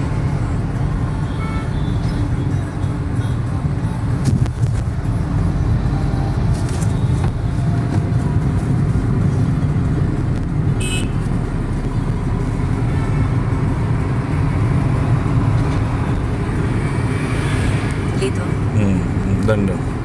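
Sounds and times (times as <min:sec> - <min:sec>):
car engine: 0:00.0 - 0:20.0
road noise: 0:00.0 - 0:20.0.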